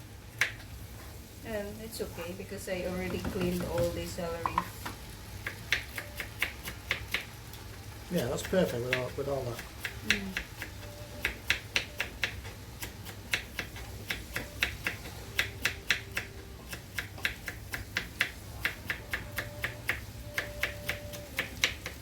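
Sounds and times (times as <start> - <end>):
knife chopping on cutting board: 4.5 - 7.3, 8.3 - 22.0.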